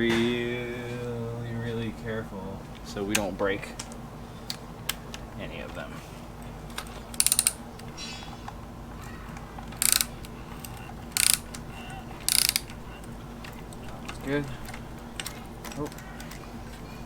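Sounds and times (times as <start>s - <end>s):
hand ratchet clicking: 6.7s - 8.0s, 9.6s - 16.8s.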